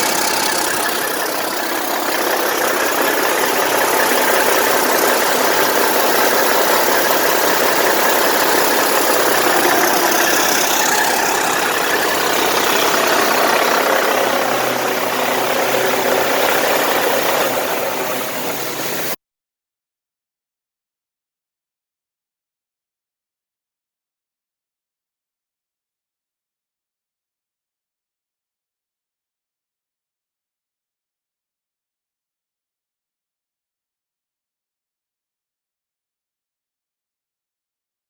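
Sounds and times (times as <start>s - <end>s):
diesel engine running: 0.0s - 19.2s.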